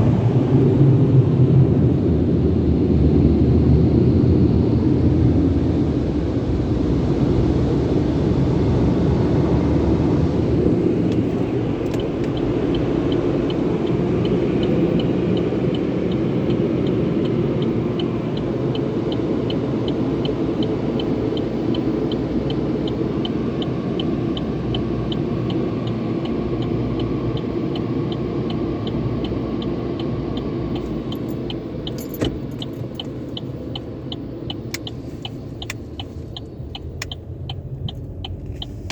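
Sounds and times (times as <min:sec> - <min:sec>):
regular high ticking: 0:11.8 - 0:38.9.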